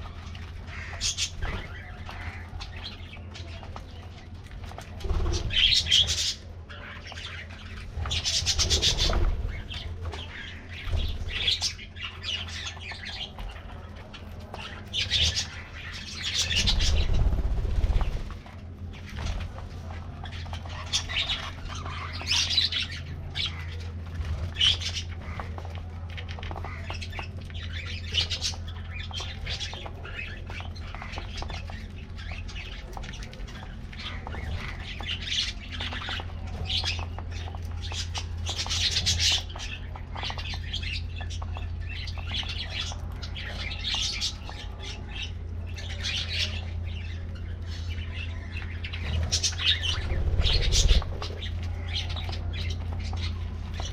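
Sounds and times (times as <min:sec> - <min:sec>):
budgerigars chirping and squawking: 0:00.0 - 0:53.9
steady low hum: 0:00.0 - 0:53.9.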